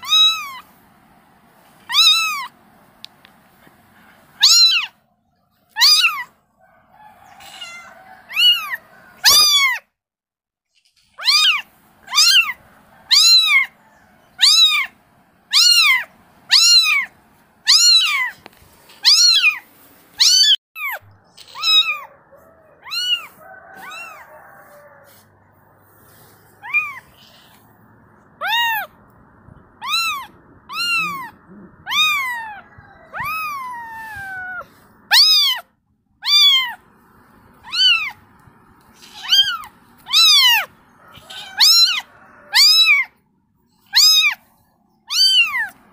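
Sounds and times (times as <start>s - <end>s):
kitten meowing: 0.0s - 0.6s, 1.9s - 2.5s, 4.4s - 5.0s, 5.7s - 6.3s, 7.4s - 9.8s, 11.1s - 13.7s, 14.4s - 14.9s, 15.5s - 17.1s, 17.7s - 19.6s, 20.2s - 22.1s, 22.8s - 24.2s, 26.6s - 27.6s, 28.4s - 29.0s, 29.7s - 36.8s, 37.6s - 38.2s, 39.0s - 43.1s, 43.9s - 44.4s, 45.1s - 45.8s.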